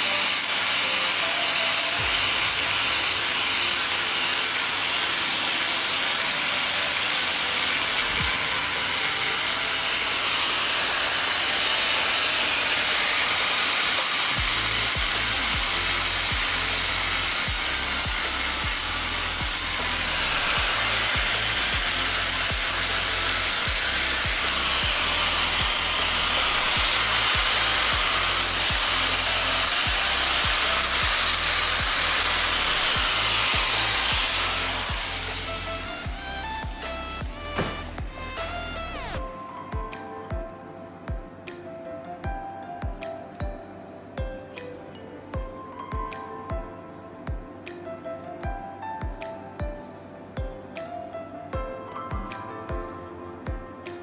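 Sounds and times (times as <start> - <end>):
tool scraping hard surface: 0.0 - 39.4
music with bass beat: 36.0 - 40.5.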